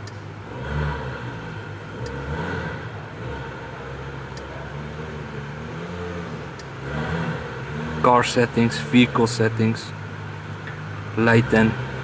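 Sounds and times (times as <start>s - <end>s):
faint clicks: 0.0s - 0.2s, 10.5s - 10.8s
car engine hum inside cabin: 0.0s - 12.0s.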